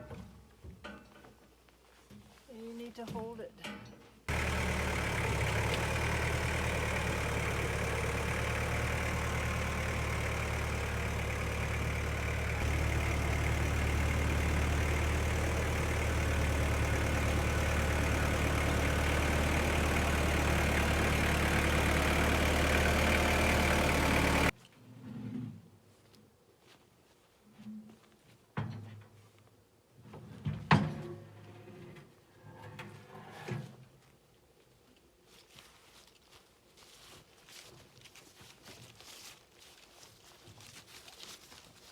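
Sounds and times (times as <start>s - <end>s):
small gasoline engine running: 4.3s - 24.5s.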